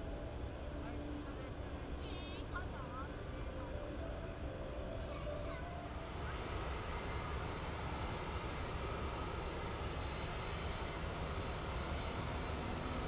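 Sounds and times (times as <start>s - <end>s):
jet engines rumbling: 0.0s - 13.0s
thin high whine: 5.1s - 13.0s.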